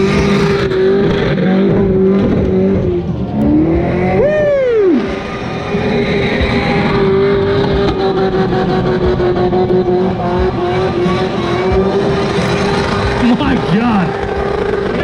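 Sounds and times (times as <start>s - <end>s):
car engine at high revs: 0.0s - 15.0s
spinning tires: 4.1s - 15.0s.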